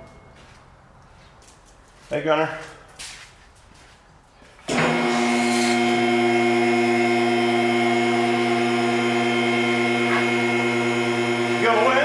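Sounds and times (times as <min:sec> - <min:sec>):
electric motor humming: 0:04.7 - 0:12.0.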